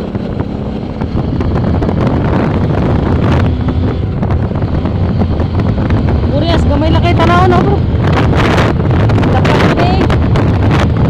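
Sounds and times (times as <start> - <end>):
motorcycle engine droning: 0.0 - 11.0
wind buffeting microphone: 0.0 - 11.0.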